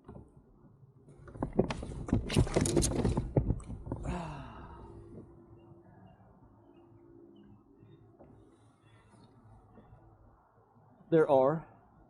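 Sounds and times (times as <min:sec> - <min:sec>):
rushing and clattering on kayak: 0:01.2 - 0:04.2.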